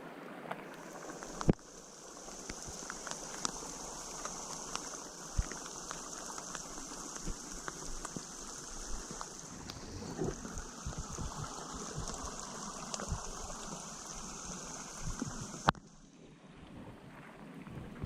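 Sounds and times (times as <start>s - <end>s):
steady rain: 0.3s - 16.1s
drops ticking: 1.1s - 9.5s.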